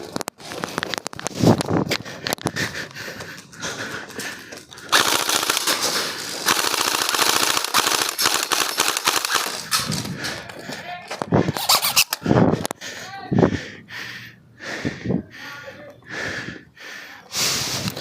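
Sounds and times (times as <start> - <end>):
airsoft rifle firing full auto: 4.9 - 9.9.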